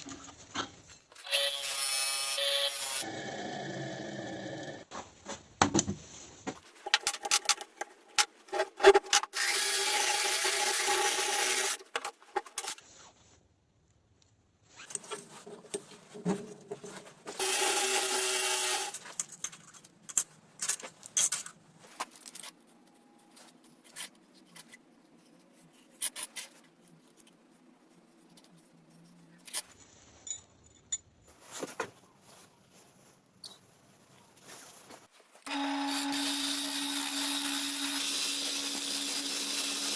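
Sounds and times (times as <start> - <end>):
power tool running: 17.4 - 19.0, 35.5 - 39.9.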